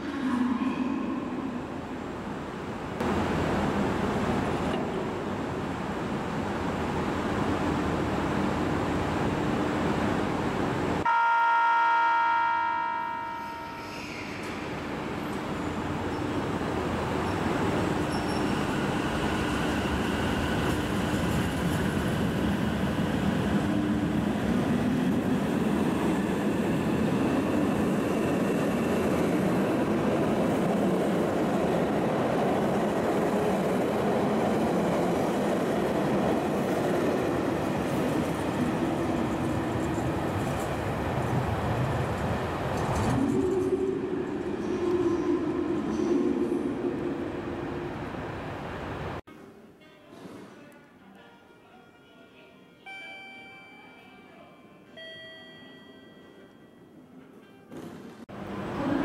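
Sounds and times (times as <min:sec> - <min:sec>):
train horn: 0:11.0 - 0:13.8.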